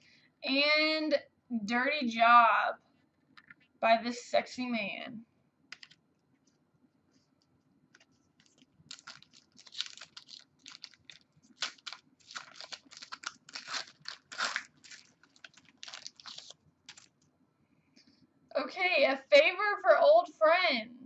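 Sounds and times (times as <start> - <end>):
wrapper tearing and crinkling: 8.4 - 17.2.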